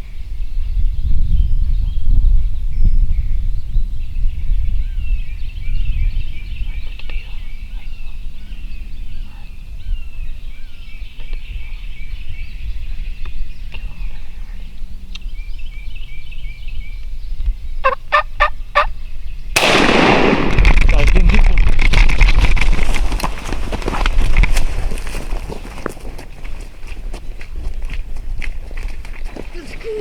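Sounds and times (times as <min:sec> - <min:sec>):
small birds singing: 0:00.0 - 0:20.1, 0:22.9 - 0:30.0
turkey gobbling: 0:17.8 - 0:18.9, 0:29.4 - 0:30.0.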